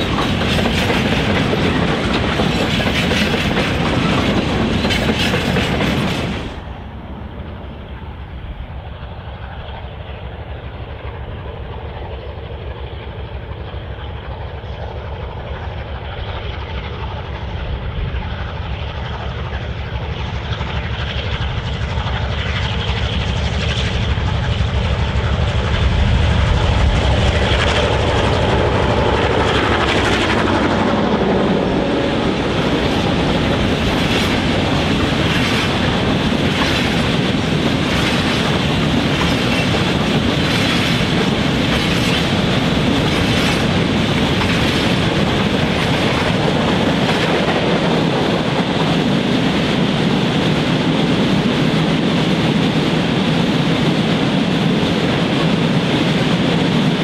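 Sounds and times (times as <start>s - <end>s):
wheels clacking over rail joints: 0.0s - 6.7s, 27.1s - 50.2s
diesel locomotive engines: 0.0s - 57.0s.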